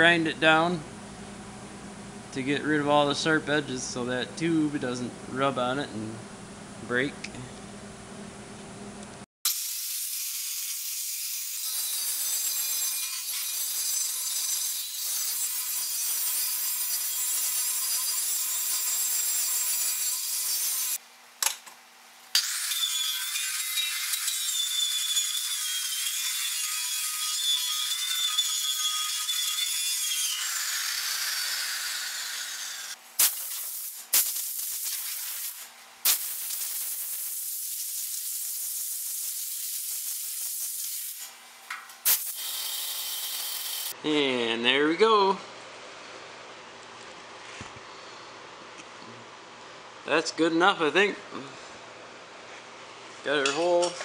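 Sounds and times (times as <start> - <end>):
angle grinder grinding metal: 9.5 - 21.0, 22.3 - 33.4, 38.0 - 44.0.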